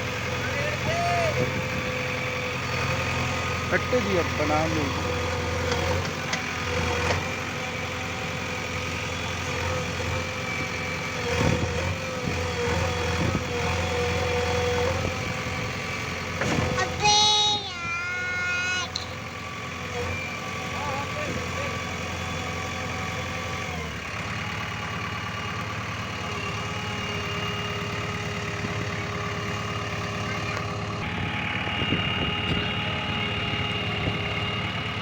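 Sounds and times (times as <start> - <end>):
engine knocks: 0.0 - 8.5, 14.7 - 17.6, 18.8 - 35.0
diesel engine running: 0.0 - 35.0.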